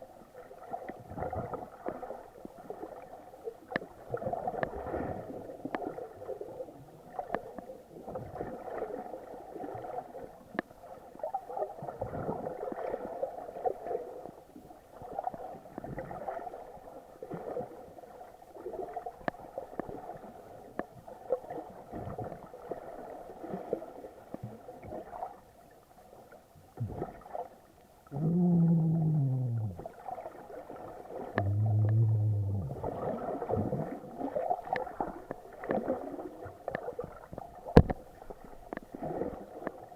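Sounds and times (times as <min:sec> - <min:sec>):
water gurgling and sloshing: 0:00.0 - 0:39.9
loud low hums: 0:28.1 - 0:29.8, 0:31.4 - 0:33.0.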